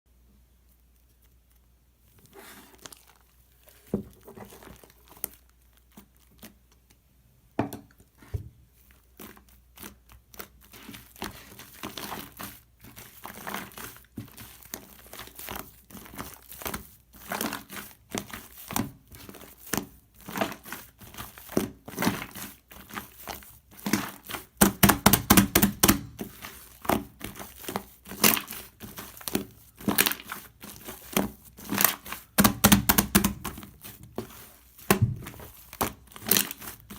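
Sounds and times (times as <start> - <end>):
slime crackling and popping: 2.4 - 3.8, 8.9 - 36.9.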